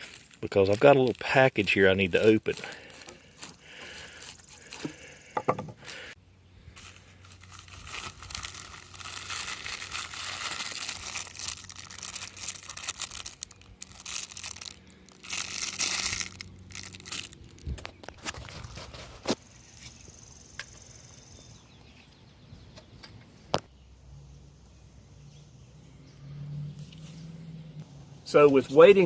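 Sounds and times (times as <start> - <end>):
package wrapping crinkling: 0.0 - 5.2, 6.7 - 19.4.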